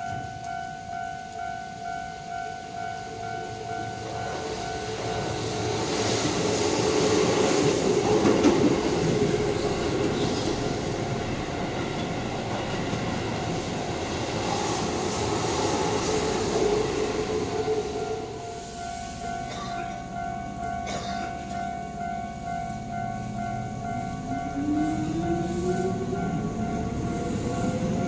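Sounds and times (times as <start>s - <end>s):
electric train running past: 0.0s - 28.0s
level crossing bell ringing: 17.7s - 28.0s.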